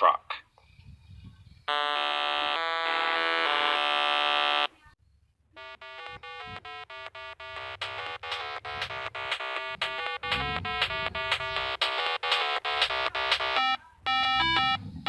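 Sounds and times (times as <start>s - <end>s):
electronic buzz: 1.7s - 4.7s, 5.6s - 14.8s
short electronic beeps: 5.6s - 14.8s.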